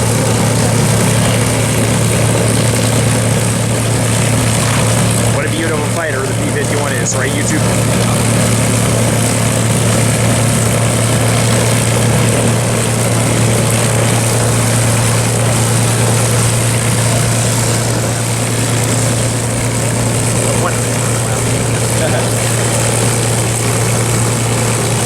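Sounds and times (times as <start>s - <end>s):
propeller engine droning: 0.0s - 25.0s.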